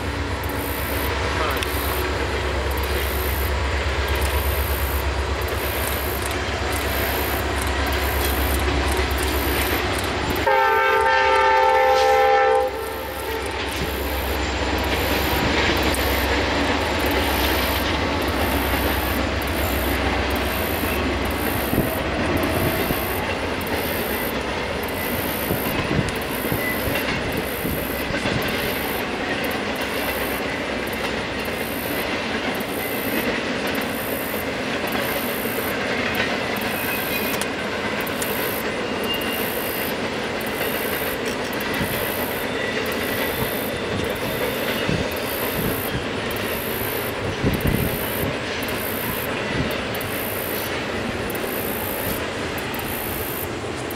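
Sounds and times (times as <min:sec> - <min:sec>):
train wheels rumbling on rail: 0:00.0 - 0:53.9
train horn: 0:10.4 - 0:16.3.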